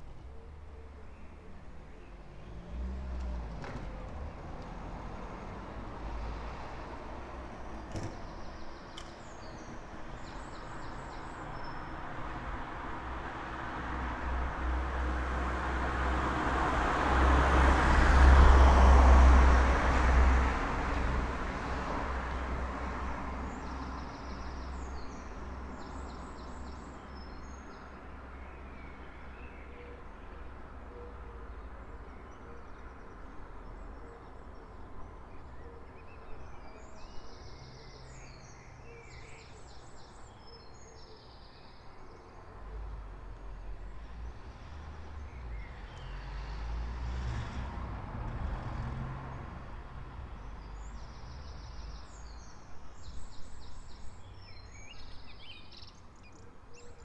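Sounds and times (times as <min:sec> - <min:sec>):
vehicle passing by: 0:02.3 - 0:07.8, 0:13.1 - 0:23.3, 0:42.7 - 0:52.2.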